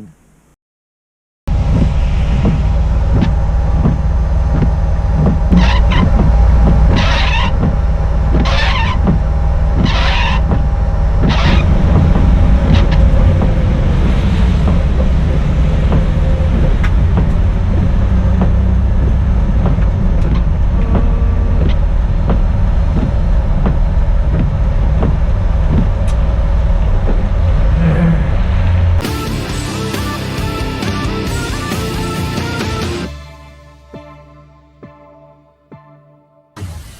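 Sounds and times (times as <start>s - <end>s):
car engine rumbling: 1.5s - 34.9s.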